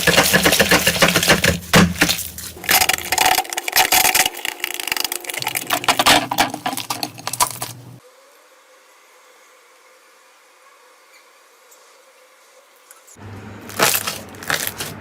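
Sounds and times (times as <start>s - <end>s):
slime crackling and popping: 13.7s - 15.0s.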